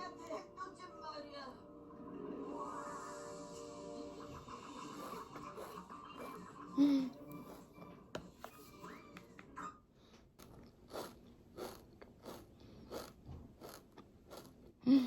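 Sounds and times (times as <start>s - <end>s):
crunchy chewing of food: 10.4s - 14.8s.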